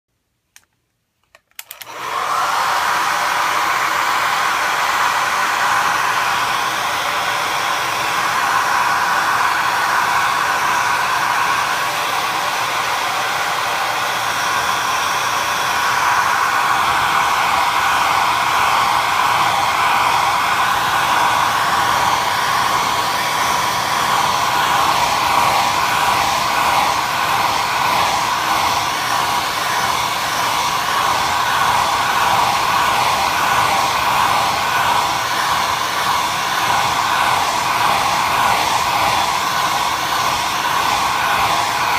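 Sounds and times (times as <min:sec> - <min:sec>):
hair dryer switch clicks: 0:00.6 - 0:02.7
hair dryer blowing: 0:01.6 - 0:41.9.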